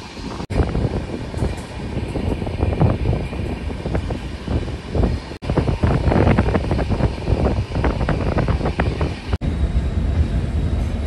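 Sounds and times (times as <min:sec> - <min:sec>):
train rumbling: 0:00.0 - 0:11.0
train wheels clattering on rails: 0:00.0 - 0:11.0
wind buffeting microphone: 0:00.0 - 0:11.0.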